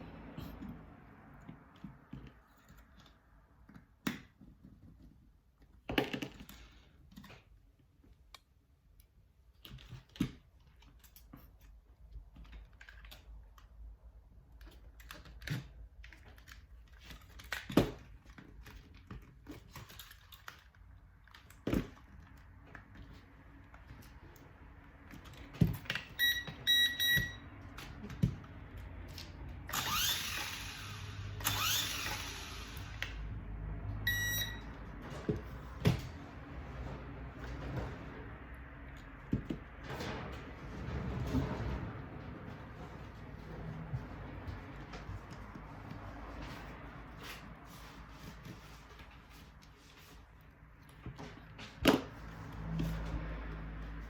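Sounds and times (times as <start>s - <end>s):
whirring rising in pitch: 29.7s - 33.3s.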